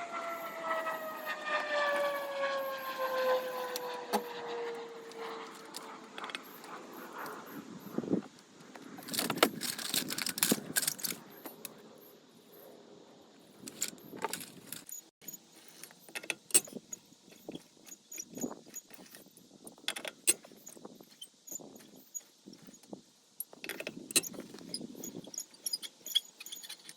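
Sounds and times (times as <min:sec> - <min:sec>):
metal tools clinking: 0:09.0 - 0:11.7, 0:23.4 - 0:26.9.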